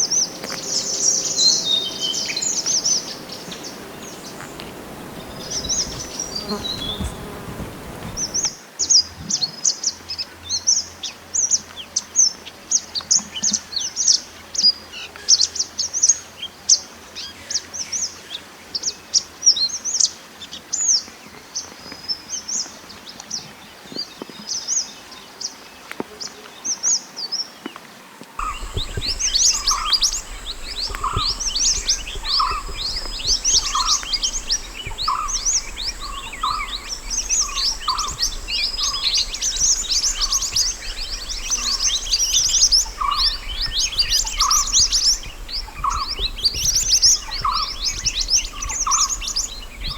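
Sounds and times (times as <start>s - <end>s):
bird chirping and twittering: 0.0s - 8.5s, 28.4s - 49.9s
low hum: 0.0s - 8.5s, 28.4s - 49.9s.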